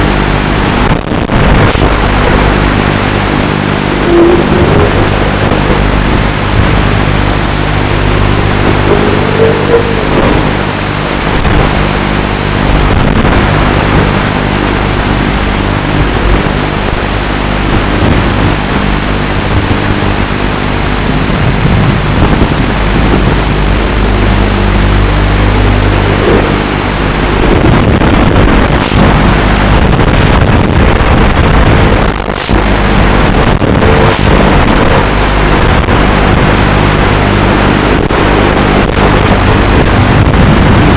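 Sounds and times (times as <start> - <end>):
rush of air noise: 0.0 - 40.9.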